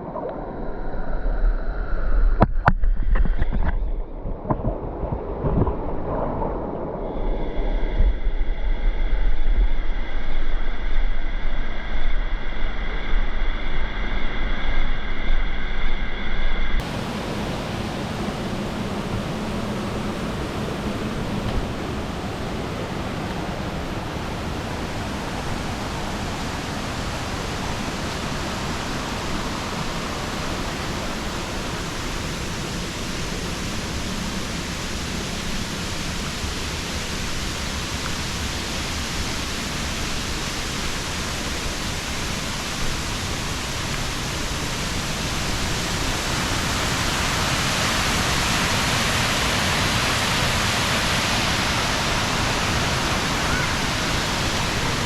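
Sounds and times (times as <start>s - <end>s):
waterfall rushing: 16.8s - 55.0s.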